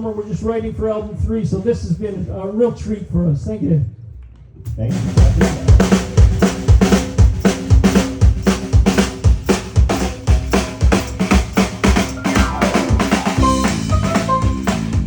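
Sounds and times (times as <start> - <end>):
kick and snare drums: 4.7 - 15.0
bass guitar: 11.3 - 15.0
guitar notes: 12.1 - 15.0
melodic lead guitar: 12.1 - 15.0.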